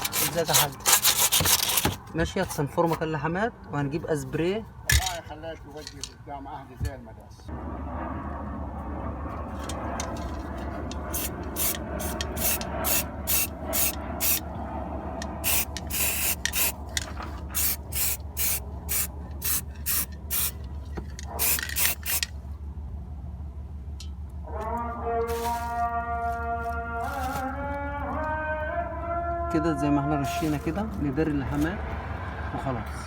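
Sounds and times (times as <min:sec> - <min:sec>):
low hum: 0:07.4 - 0:31.1
spray can hissing: 0:11.0 - 0:14.4, 0:15.2 - 0:17.0, 0:17.6 - 0:20.6, 0:21.2 - 0:22.3.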